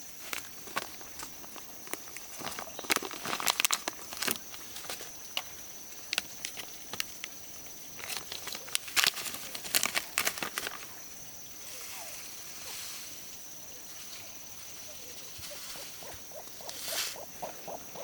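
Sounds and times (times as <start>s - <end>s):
dry material crackling and rustling: 0.0s - 11.0s.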